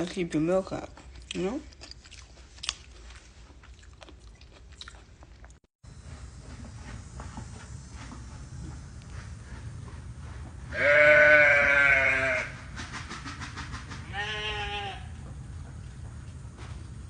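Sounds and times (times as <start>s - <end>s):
farm animal bleating: 10.7s - 12.5s, 14.1s - 15.2s.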